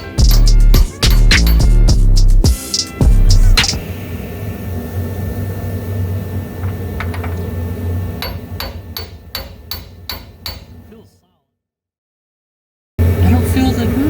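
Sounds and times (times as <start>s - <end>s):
hammer striking metal: 0.0s - 3.0s, 8.2s - 11.0s.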